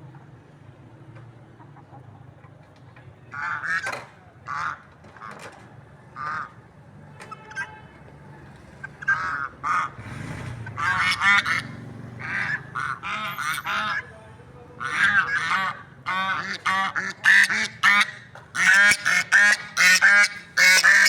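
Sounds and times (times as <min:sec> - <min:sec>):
fowl giving harsh calls: 0:03.4 - 0:05.4, 0:08.8 - 0:14.1, 0:14.8 - 0:21.0.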